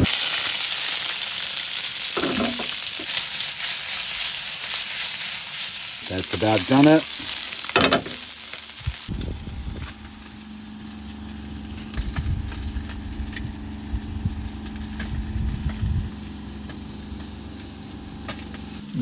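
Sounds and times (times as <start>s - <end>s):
fish sizzling in a pan: 0.0s - 19.0s
steady low hum: 8.0s - 19.0s.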